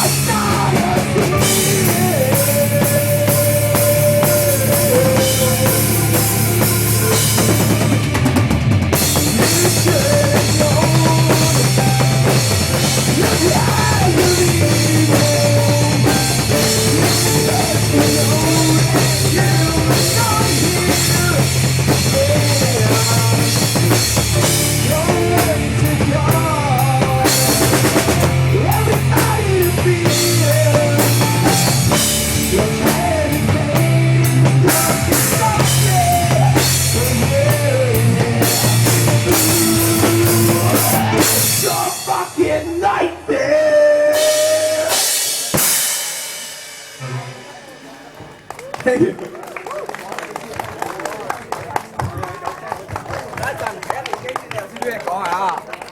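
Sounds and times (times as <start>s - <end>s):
drum kit beat: 0.0s - 42.8s, 44.1s - 49.4s
rock band playing: 0.0s - 54.9s.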